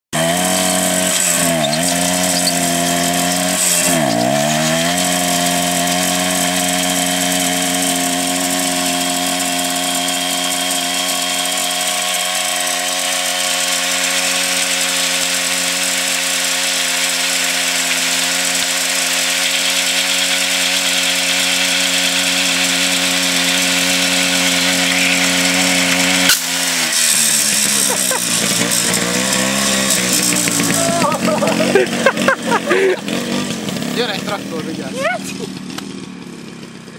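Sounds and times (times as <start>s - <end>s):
two-stroke motorcycle engine revving: 0.0s - 36.9s
tyre spinning on asphalt: 0.2s - 36.9s
sharp crack: 26.2s - 31.8s.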